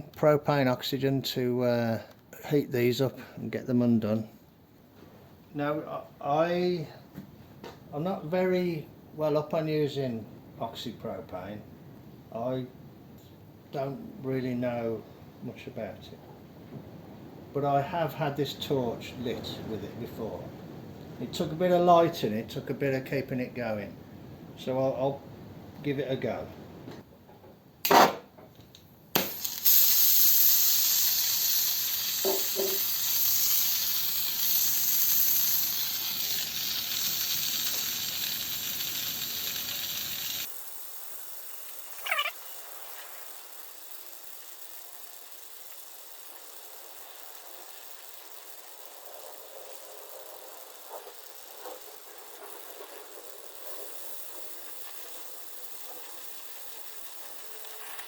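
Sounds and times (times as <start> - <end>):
gas torch hissing: 29.1 - 40.6.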